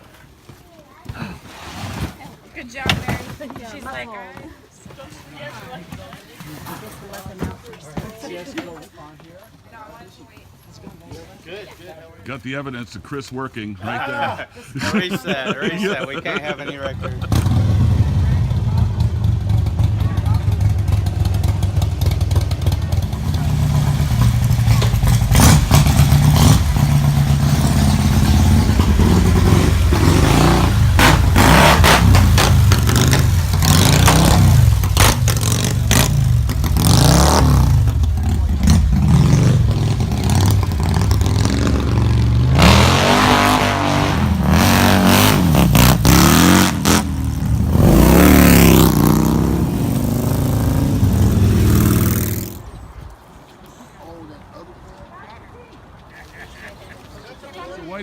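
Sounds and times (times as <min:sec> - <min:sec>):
vehicle engine revving: 0:17.2 - 0:52.7.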